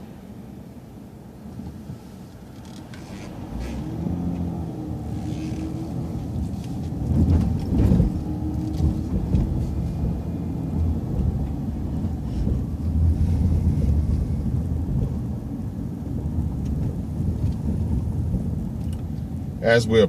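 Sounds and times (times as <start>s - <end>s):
bus engine and road rumble: 0.0s - 20.0s
knocks and rattles: 5.2s - 12.6s.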